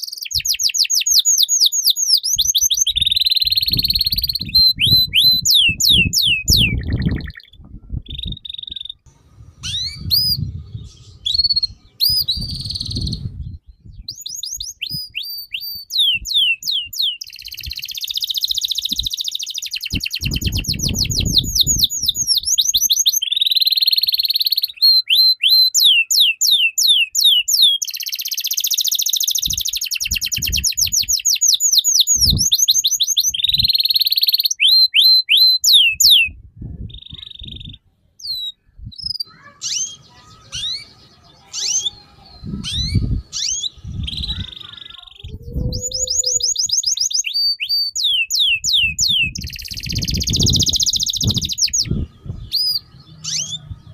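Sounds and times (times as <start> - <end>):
songbird rasping chatter: 0.0 - 15.1, 36.8 - 53.9
songbird whistled notes: 0.0 - 53.9.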